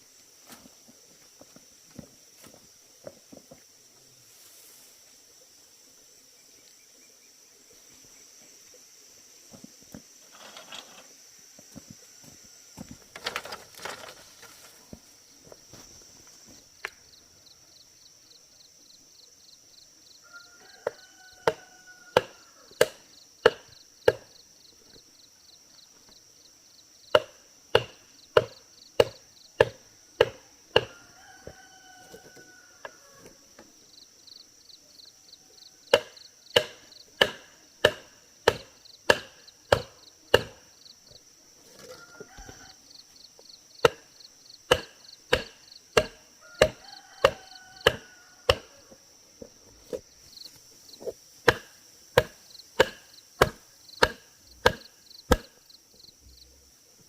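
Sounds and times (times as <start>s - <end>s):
high insect drone: 0.0s - 57.0s
chopping blows on wood: 21.4s - 24.3s, 27.1s - 31.0s, 35.9s - 40.6s, 43.8s - 44.1s, 44.7s - 48.8s, 51.0s - 55.6s.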